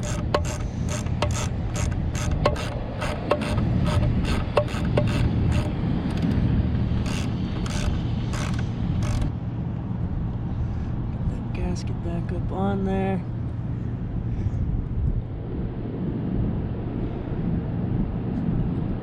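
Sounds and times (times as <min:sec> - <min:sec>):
sharp metallic clicks: 0:00.0 - 0:09.3
steady low hum: 0:00.0 - 0:19.0.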